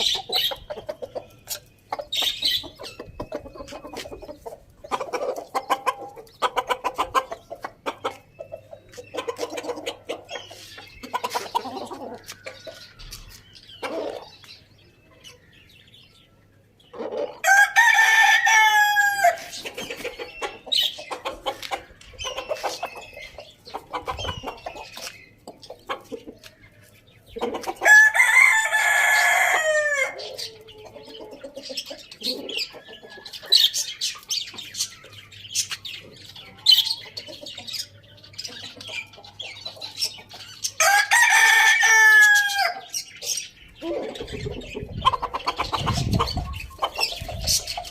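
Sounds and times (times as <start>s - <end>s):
chickens clucking: 0.0s - 47.9s
roosters crowing: 17.0s - 19.8s, 27.6s - 31.2s, 40.6s - 43.1s.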